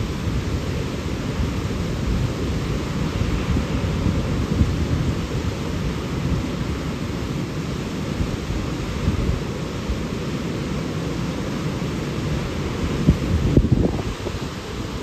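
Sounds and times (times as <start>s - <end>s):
powerful rushing water: 0.0s - 15.0s.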